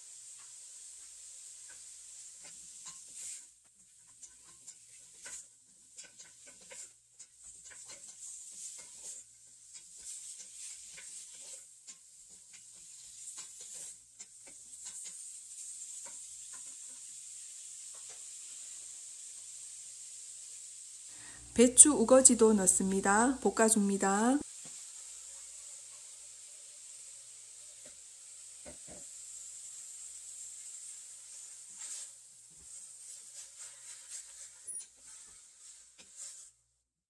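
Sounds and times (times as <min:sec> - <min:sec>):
food sizzling in oil: 0:00.0 - 0:36.9
utensil scraping a pot: 0:01.7 - 0:17.1, 0:31.3 - 0:36.6.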